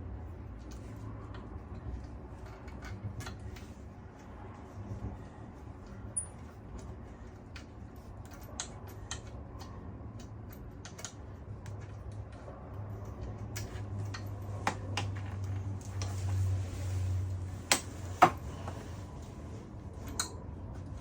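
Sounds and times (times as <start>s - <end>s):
steady low hum: 0.0s - 21.0s
hand tools clicking and tapping: 7.5s - 16.2s, 17.7s - 18.8s, 20.0s - 20.4s.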